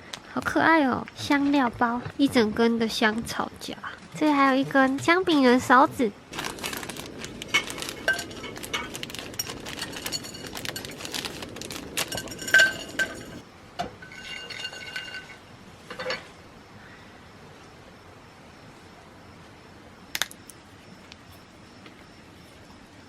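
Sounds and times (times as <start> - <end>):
glass and metal cookware clinking: 7.4 - 13.4, 14.0 - 16.3.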